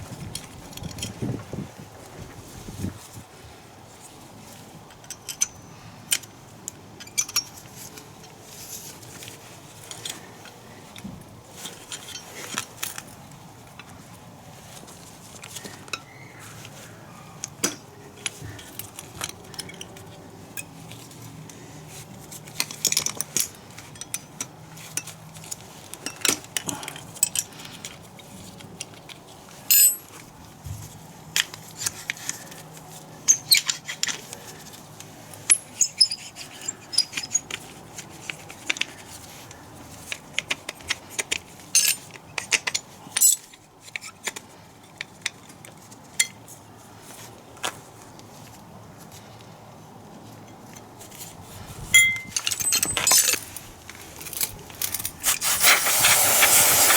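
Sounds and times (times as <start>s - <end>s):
metal tools clinking: 29.7s - 30.2s, 35.4s - 37.6s, 41.7s - 43.6s, 52.0s - 56.9s.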